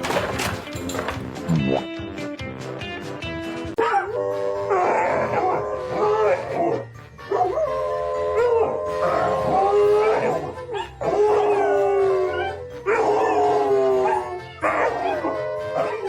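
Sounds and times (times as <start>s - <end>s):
dog howling: 3.8s - 16.0s.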